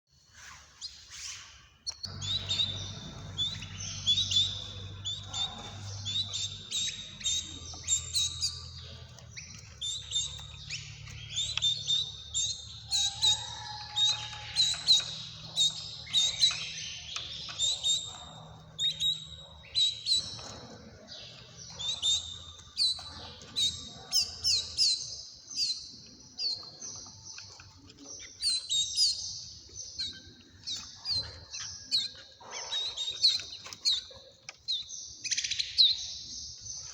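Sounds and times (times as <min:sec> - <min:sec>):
small birds chirping: 0:00.1 - 0:36.9
faint low hum: 0:02.0 - 0:25.0.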